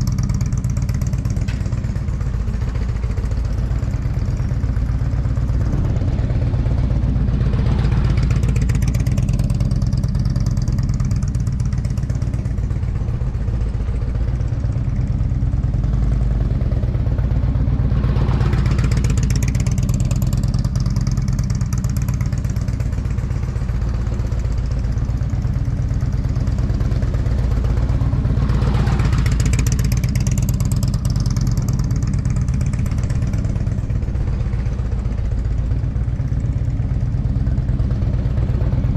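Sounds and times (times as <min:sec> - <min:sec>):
motorcycle engine passing: 0:28.4 - 0:35.3.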